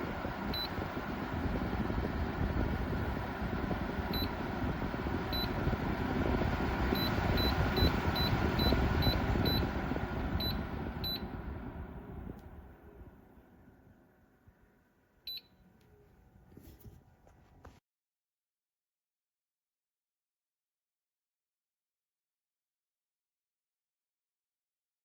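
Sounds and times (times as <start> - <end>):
humidifier fan rushing: 0.0 - 17.8.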